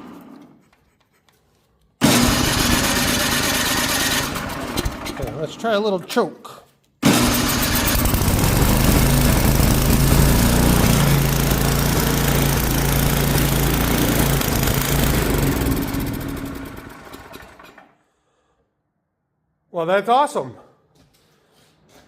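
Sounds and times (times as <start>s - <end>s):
small gas engine running: 2.0s - 5.4s, 7.0s - 17.9s.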